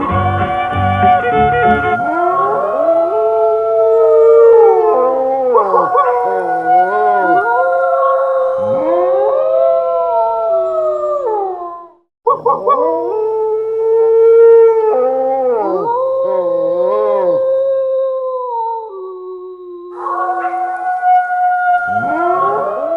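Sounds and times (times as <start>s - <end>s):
two voices howling: 2.0s - 9.5s, 12.3s - 17.8s, 21.9s - 22.9s.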